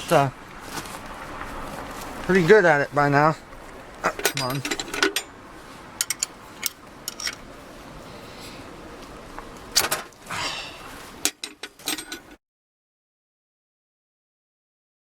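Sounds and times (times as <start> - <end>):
metal tools clinking on bolts: 4.0 - 5.4, 6.0 - 7.5, 11.2 - 12.4.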